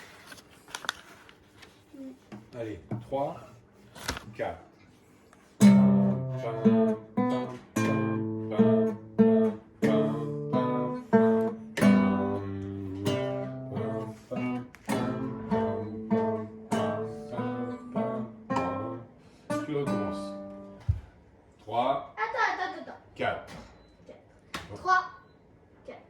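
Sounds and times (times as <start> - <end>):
guitar chords strummed: 5.6 - 20.8.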